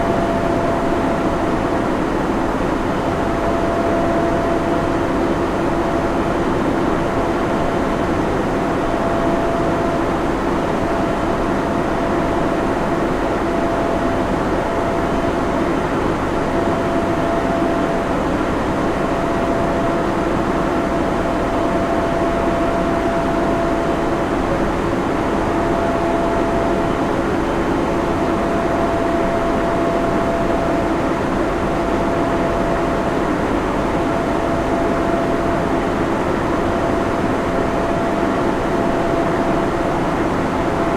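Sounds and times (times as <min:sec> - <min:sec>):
cooling fans rushing: 0:00.0 - 0:40.9
equipment hum: 0:00.0 - 0:40.9
faint steady whine: 0:00.0 - 0:40.9.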